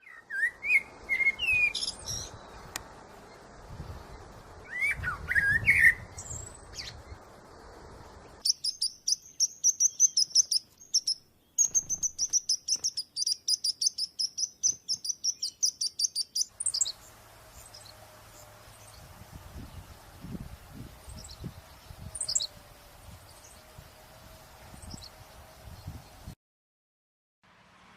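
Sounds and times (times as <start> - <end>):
birds chirping and calling: 0.0 - 7.7, 8.3 - 26.3
background hiss: 0.6 - 26.4
low steady hum: 16.5 - 26.4.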